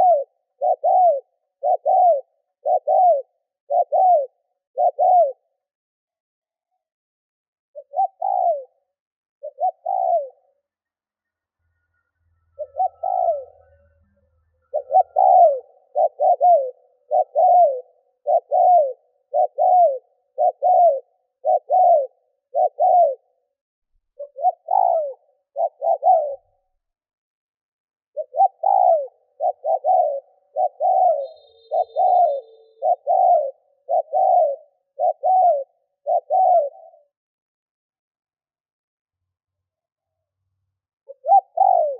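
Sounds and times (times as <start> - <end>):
dove cooing: 0.0 - 5.6, 7.8 - 10.6, 12.6 - 13.7, 14.7 - 23.4, 24.2 - 26.6, 28.1 - 37.2, 41.1 - 41.9.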